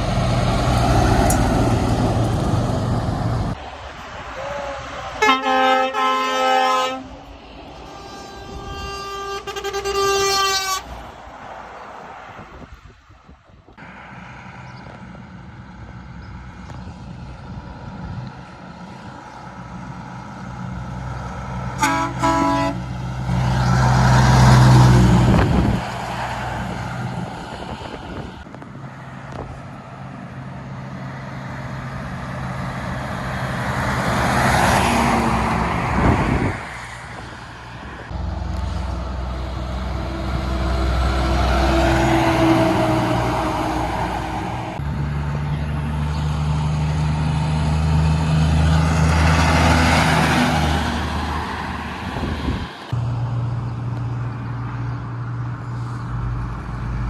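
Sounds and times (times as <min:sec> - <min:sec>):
heavy trucks passing: 0:00.0 - 0:57.0
air horn toot: 0:04.4 - 0:07.2, 0:07.8 - 0:11.0, 0:21.8 - 0:22.9.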